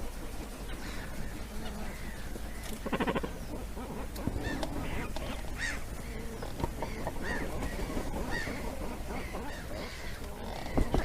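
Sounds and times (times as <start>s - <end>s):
cormorants calling: 0.0s - 11.0s.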